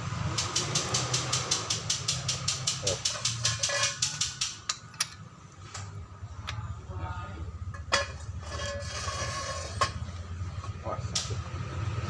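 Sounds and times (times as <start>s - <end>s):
rapid metallic clicking: 0.3s - 5.2s
sharp clicks and knocks: 0.3s - 6.6s.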